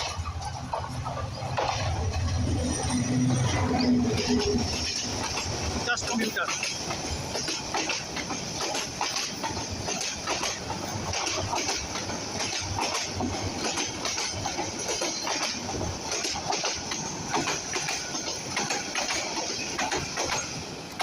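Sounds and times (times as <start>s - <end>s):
train rushing rumble: 0.0s - 21.0s
train wheels clattering: 0.0s - 21.0s.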